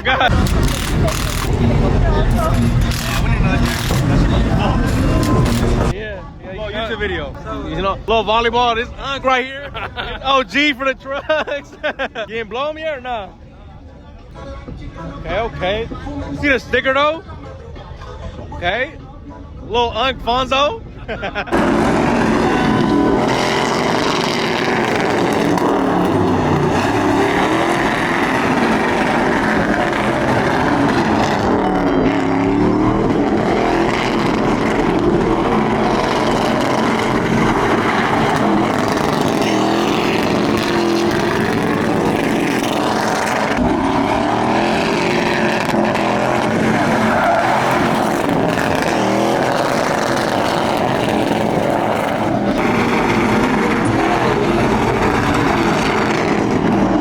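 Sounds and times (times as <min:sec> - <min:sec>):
truck engines revving: 0:00.0 - 0:06.0, 0:21.2 - 0:57.0
tyre squeal: 0:46.2 - 0:56.3.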